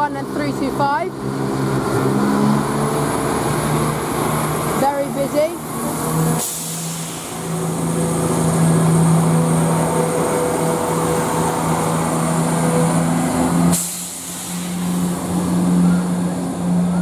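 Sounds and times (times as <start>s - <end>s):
diesel train engines droning: 0.0s - 17.0s.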